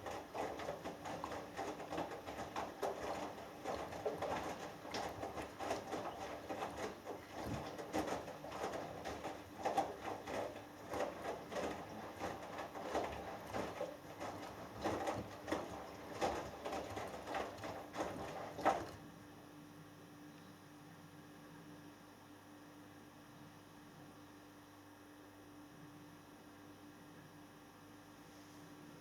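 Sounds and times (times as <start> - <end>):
washing machine drum tumbling: 0.0 - 19.0
water sloshing: 0.0 - 19.0
faint steady hum: 2.3 - 24.8.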